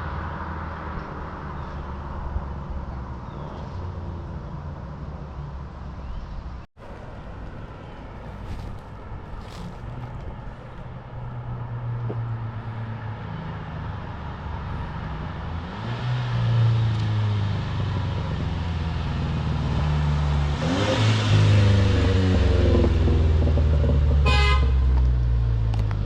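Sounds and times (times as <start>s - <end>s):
car exhaust under acceleration: 6.8s - 26.0s.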